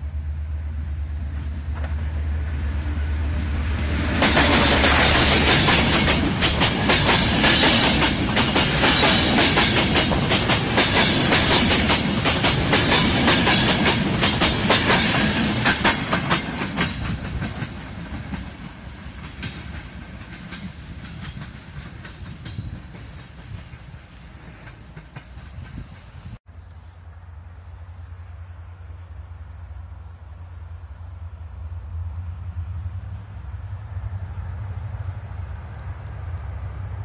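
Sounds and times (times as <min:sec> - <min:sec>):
train rumble: 0:00.0 - 0:37.0
train wheels clicking over rail joints: 0:01.2 - 0:02.9, 0:03.8 - 0:26.4.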